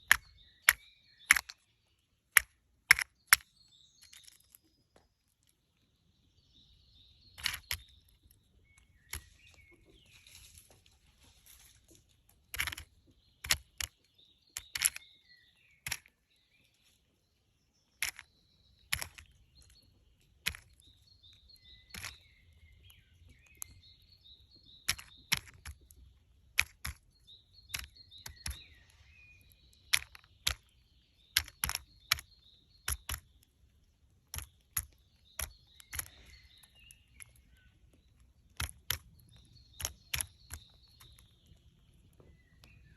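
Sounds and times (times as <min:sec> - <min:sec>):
woodpecker tapping: 0:00.0 - 0:04.4, 0:12.5 - 0:16.1, 0:18.0 - 0:19.8, 0:20.4 - 0:33.5, 0:34.2 - 0:42.9
faint bird chirps: 0:26.9 - 0:33.5, 0:34.3 - 0:42.9.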